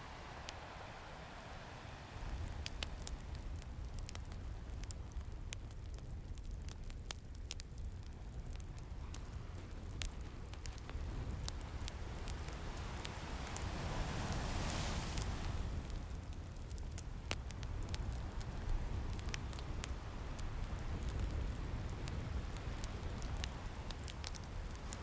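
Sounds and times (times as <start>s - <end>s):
ocean waves: 0.0s - 4.9s, 9.0s - 16.4s, 18.1s - 25.0s
wood fire crackling and popping: 0.0s - 25.0s.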